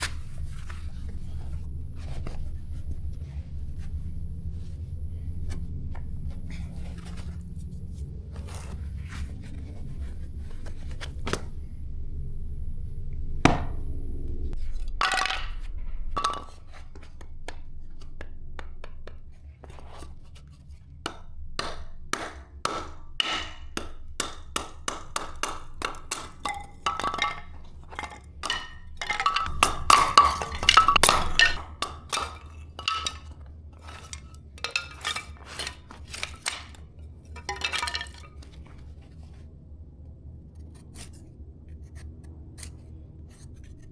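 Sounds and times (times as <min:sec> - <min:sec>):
wood knocking and cracking: 0:14.9 - 0:19.2, 0:21.1 - 0:36.8, 0:37.4 - 0:38.4
axe striking wood: 0:21.1 - 0:33.3.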